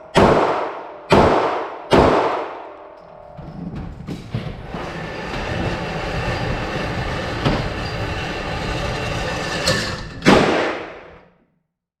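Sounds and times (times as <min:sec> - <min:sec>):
rumbling rattling noise: 0:03.2 - 0:11.3.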